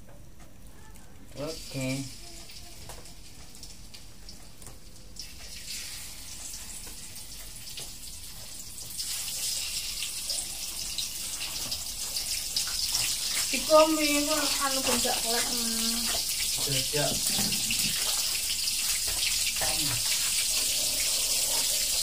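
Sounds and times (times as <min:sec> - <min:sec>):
food sizzling in hot oil: 0:01.4 - 0:22.0.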